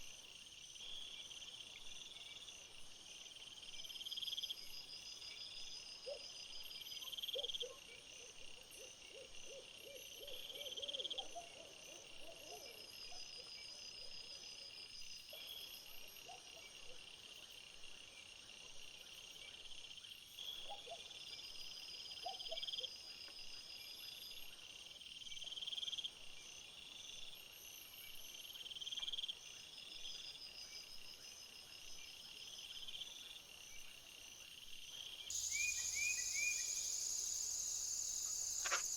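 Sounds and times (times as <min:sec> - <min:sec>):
insects chirring: 0:35.1 - 0:38.9.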